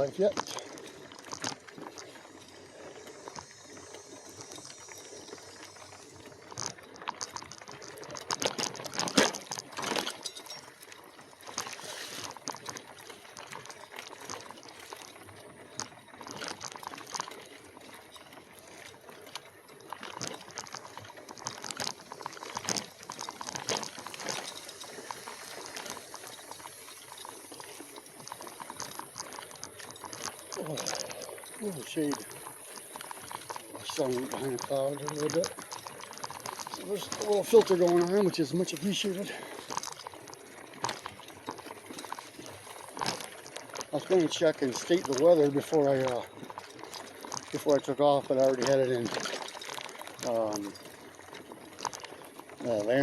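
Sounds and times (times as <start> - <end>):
bike tyres crackling and rattling: 0.0 - 53.0.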